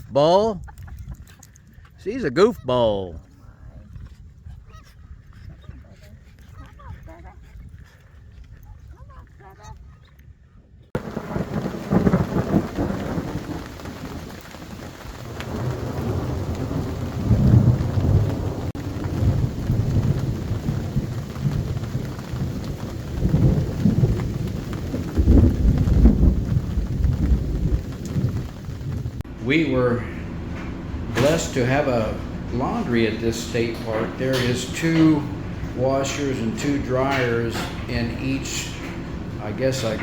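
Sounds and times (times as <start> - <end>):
rolling thunder: 11.0 - 40.0
steady rain: 11.0 - 40.0.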